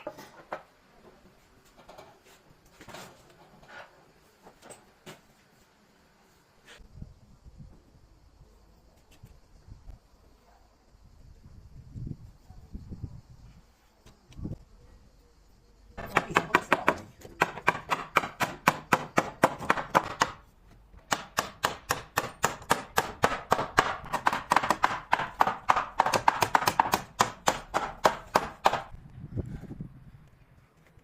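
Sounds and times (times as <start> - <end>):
hammer driving nails into wood: 16.0 - 20.4, 21.0 - 28.9.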